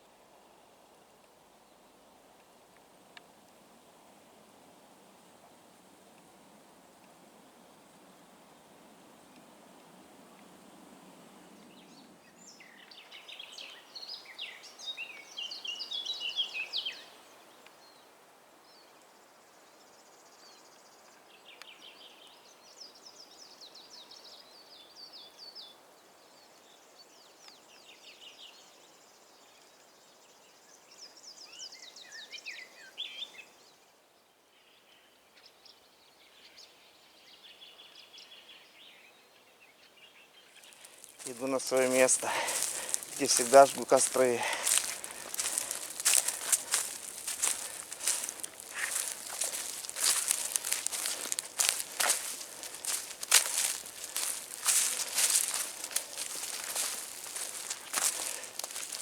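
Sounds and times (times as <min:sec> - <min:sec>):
faint steady hiss: 0:00.0 - 0:23.5, 0:40.3 - 0:59.0
songbirds chirping: 0:10.3 - 0:34.0, 0:34.6 - 0:59.0.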